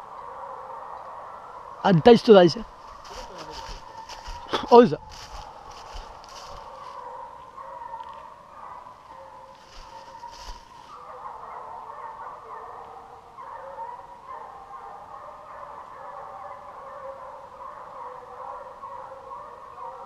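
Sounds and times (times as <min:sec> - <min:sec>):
hounds baying: 0:00.0 - 0:20.0.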